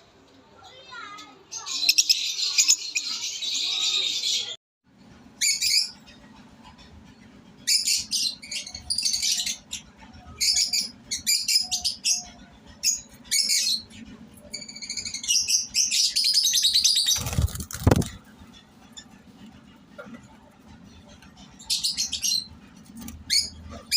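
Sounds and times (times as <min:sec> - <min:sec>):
steady low hum: 0:04.9 - 0:23.9.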